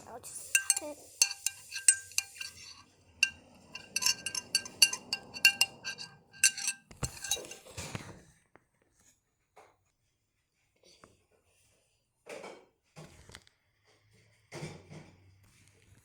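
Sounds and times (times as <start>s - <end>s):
spoon clinking against dish: 0.0s - 7.7s.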